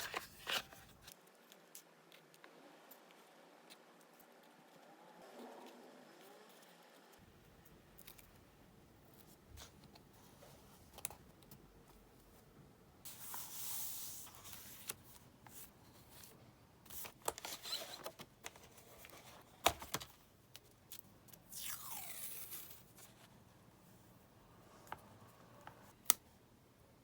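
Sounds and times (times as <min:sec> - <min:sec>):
tape and stickers ripping: 0:21.5 - 0:22.8.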